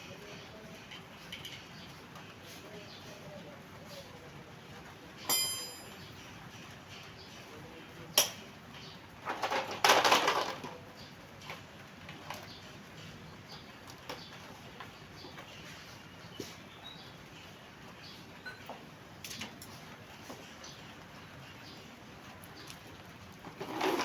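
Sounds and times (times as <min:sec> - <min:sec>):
metal clink: 0:05.3 - 0:06.1
rough scraping: 0:23.4 - 0:24.0.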